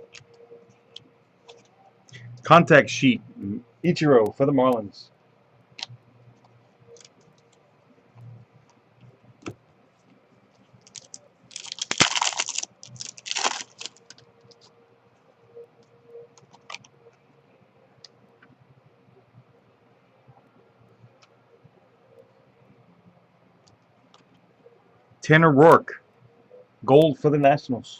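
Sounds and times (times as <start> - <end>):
card packs rustling: 10.9 - 14.6.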